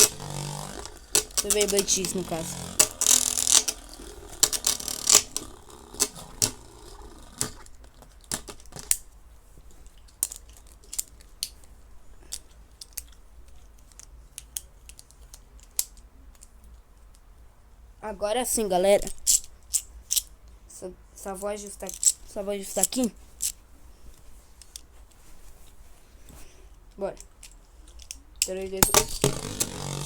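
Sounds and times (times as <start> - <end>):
plastic toy parts clicking: 0.0 - 6.8, 10.0 - 11.6, 12.3 - 16.8, 19.1 - 20.3, 21.8 - 23.6, 27.2 - 30.0.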